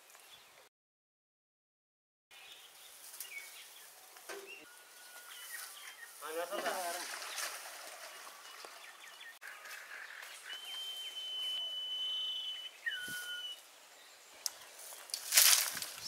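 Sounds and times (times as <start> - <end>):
outdoor ambience: 0.0 - 0.7, 2.3 - 16.0
bird whistling high notes: 10.4 - 13.6.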